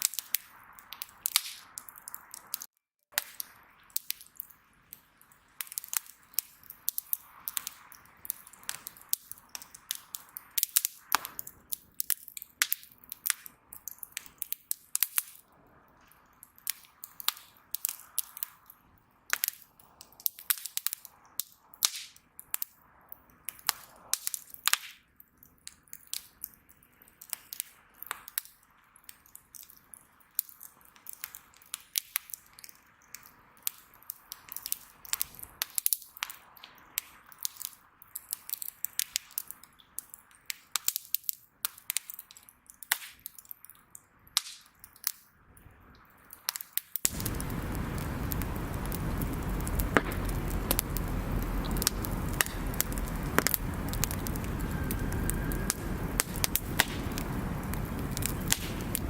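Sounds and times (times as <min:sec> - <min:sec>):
bonfire crackling: 0:00.0 - 0:45.2, 0:46.3 - 0:59.0
hiss of flames: 0:47.0 - 0:59.0.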